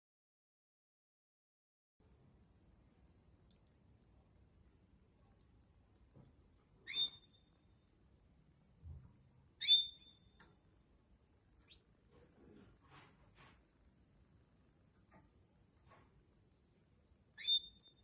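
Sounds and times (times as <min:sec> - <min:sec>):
canary call notes: 0:06.9 - 0:07.5, 0:09.6 - 0:10.4, 0:17.4 - 0:18.0.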